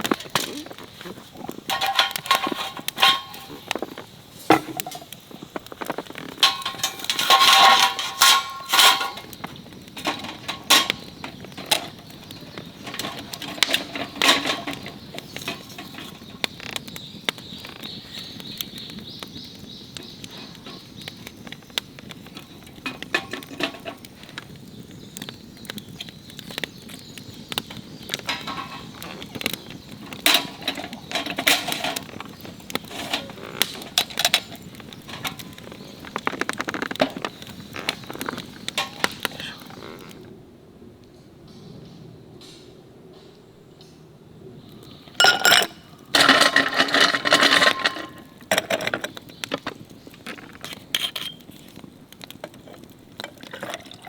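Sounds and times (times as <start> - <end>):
metal cookware clinking: 1.5 - 3.8, 6.4 - 9.4, 10.0 - 12.0, 12.8 - 16.1, 30.1 - 32.2, 45.2 - 49.0.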